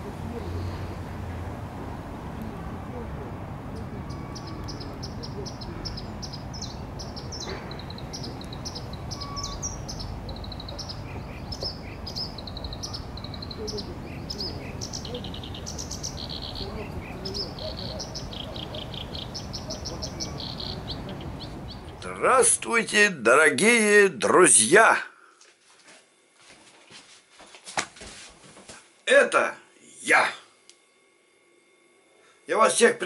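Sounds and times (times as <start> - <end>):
small birds chirping: 3.6 - 22.2.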